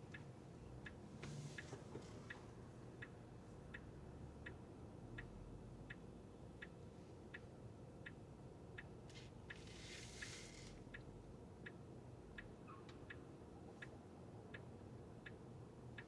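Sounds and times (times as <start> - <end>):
turn signal ticking: 3.0 - 8.2.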